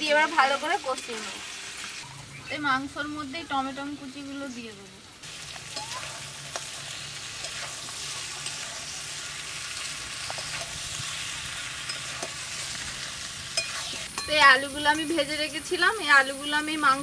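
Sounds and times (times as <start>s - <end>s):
meat sizzling in a pan: 0.0s - 17.0s
spatula scraping and knocking pan: 10.2s - 10.8s.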